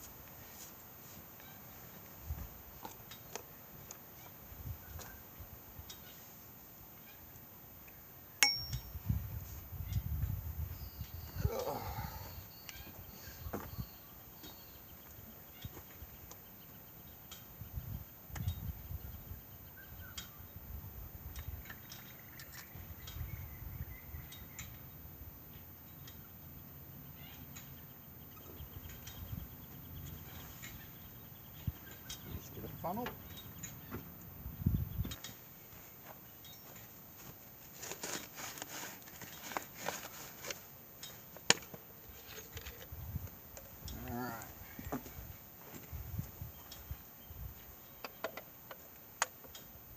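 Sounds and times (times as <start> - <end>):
faint high chirps: 8.4 - 10.1.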